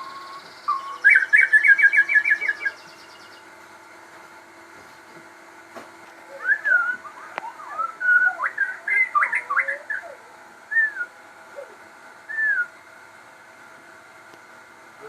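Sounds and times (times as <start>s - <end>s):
songbird whistling: 0.0s - 3.5s, 6.3s - 12.8s.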